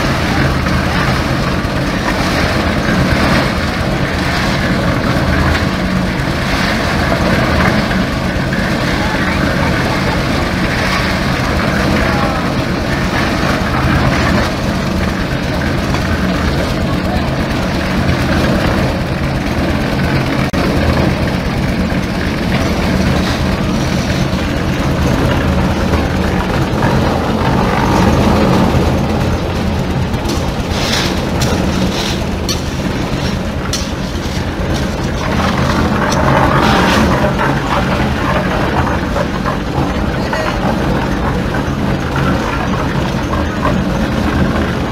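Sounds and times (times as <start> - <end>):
concrete mixer running: 0.0 - 44.9
sharp metal clanks: 30.2 - 37.1.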